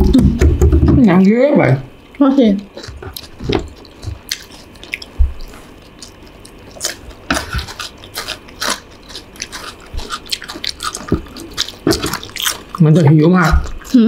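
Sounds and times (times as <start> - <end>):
chewing and biting food: 2.8 - 14.0.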